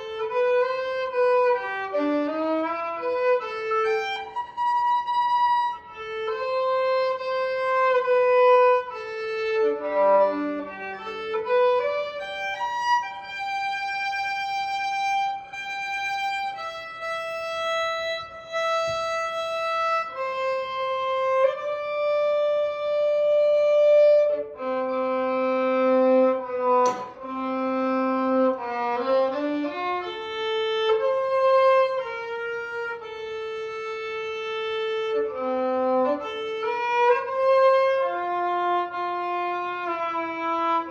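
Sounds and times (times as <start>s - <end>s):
slow bowed violin melody: 0.0s - 40.9s
brief click: 26.8s - 27.2s.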